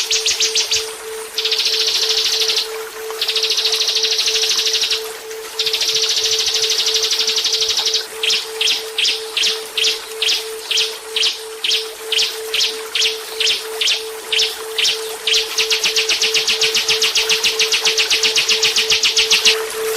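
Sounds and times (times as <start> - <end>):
songbird trill: 0.0 - 19.9.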